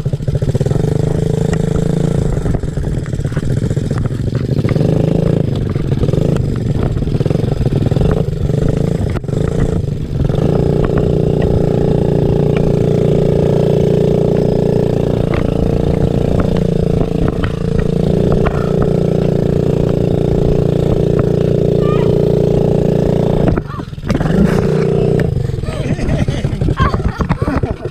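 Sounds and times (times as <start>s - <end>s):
motorcycle engine running: 0.0s - 27.9s.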